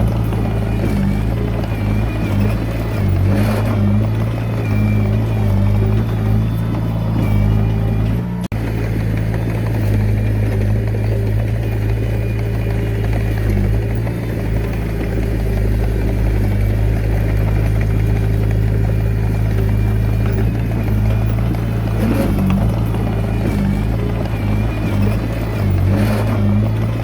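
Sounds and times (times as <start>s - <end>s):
diesel engine running under work: 0.0s - 27.0s.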